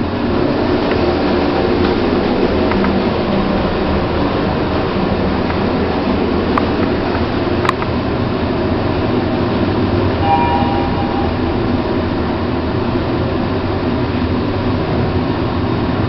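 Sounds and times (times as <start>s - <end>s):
short beep tone: 10.2s - 12.2s.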